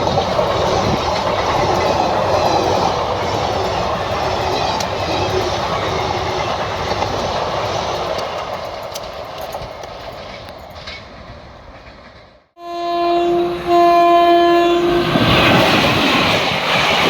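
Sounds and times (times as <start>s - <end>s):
train rumble: 0.0s - 17.0s
train rushing past: 0.0s - 17.0s
train horn blasts: 12.6s - 16.0s.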